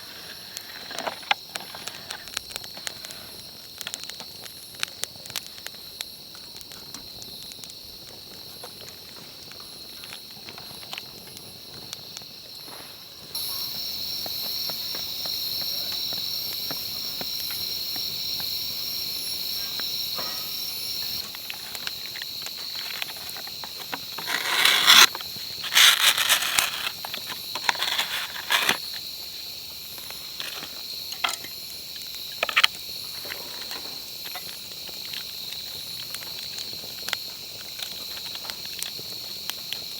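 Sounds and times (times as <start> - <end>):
insects chirping: 0.0 - 39.9
light clicks and crackles: 0.1 - 12.3, 21.2 - 29.1, 29.9 - 39.9
rustling handling noises: 22.6 - 28.8.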